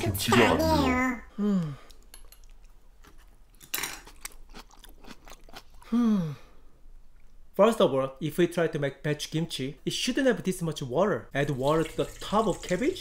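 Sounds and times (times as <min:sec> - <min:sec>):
person chewing crunchy cabbage: 0:02.4 - 0:06.0.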